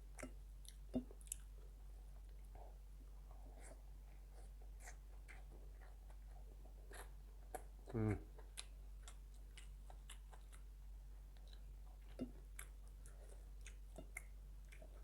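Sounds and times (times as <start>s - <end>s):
person chewing food: 0.0s - 15.0s
small mouth clicks and smacks: 0.2s - 1.5s, 11.4s - 15.0s.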